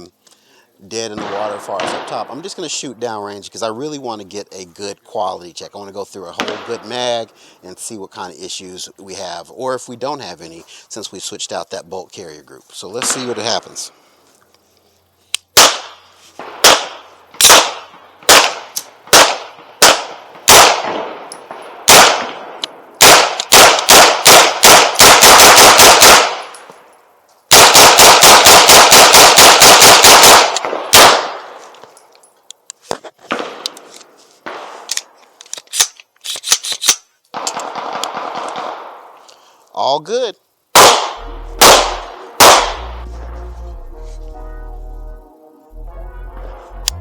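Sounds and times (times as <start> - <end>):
carbine gunshots: 15.6 - 26.5, 27.5 - 31.6, 37.4 - 39.1, 40.7 - 43.0.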